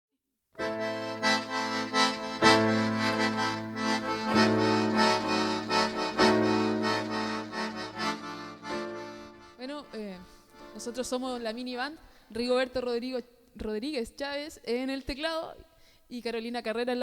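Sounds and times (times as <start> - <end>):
accordion music: 0.6 - 11.6.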